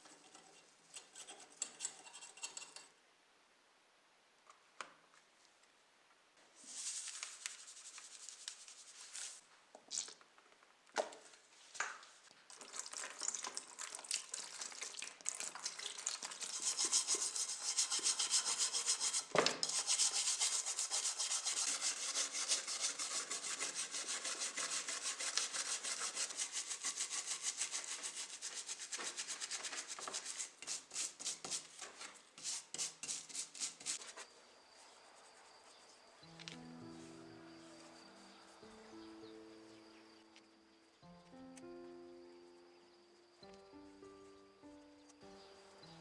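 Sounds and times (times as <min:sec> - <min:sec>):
abrasive rubbing on model car: 0:16.4 - 0:31.6.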